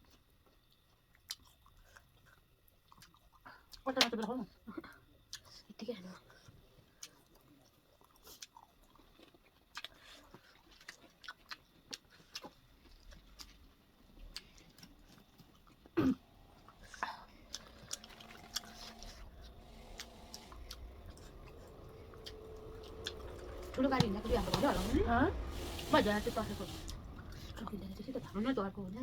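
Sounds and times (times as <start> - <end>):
chewing and biting food: 0.0 - 3.8, 6.4 - 21.6.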